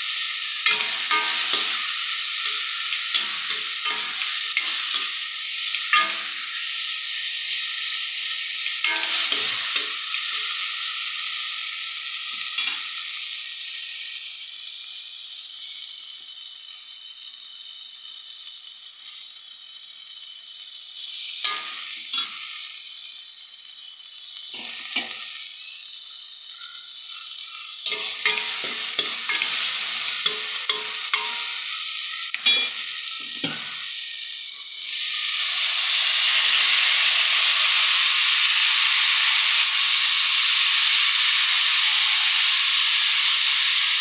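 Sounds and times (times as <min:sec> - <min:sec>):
tomato sizzling in hot oil: 0:00.0 - 0:44.0
metal spoon scraping pot: 0:27.9 - 0:31.7, 0:32.3 - 0:33.8.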